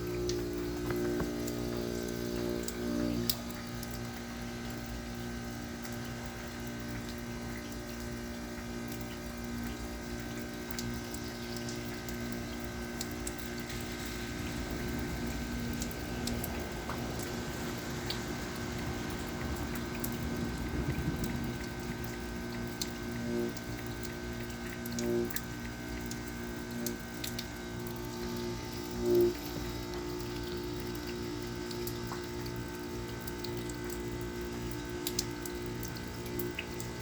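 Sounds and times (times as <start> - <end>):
heat pump humming: 0.0 - 37.0
water trickling and dripping: 0.0 - 37.0
small ticks: 22.4 - 36.9.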